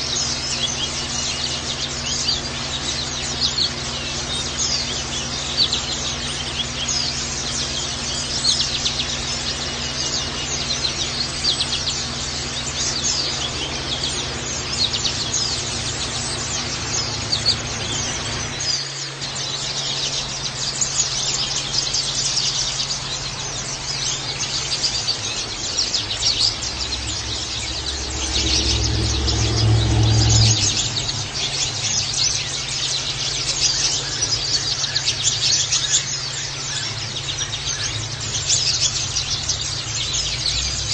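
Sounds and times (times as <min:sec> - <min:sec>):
birds twittering: 0:00.0 - 0:40.9
steady low hum: 0:00.0 - 0:40.9
low rumble: 0:24.9 - 0:33.1.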